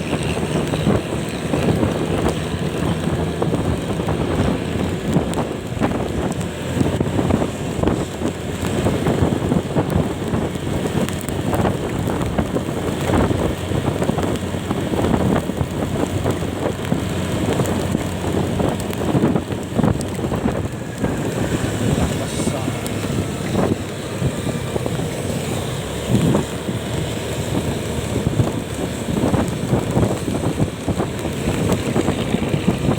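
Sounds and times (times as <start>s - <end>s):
road and engine noise: 0.0s - 32.9s
wind rushing over microphone: 0.0s - 32.9s.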